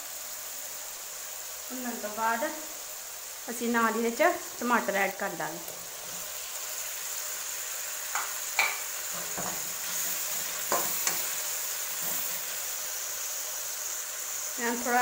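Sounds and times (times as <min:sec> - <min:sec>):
onions sizzling in oil: 0:00.0 - 0:15.0
metal spatula scraping a pan: 0:08.6 - 0:12.4.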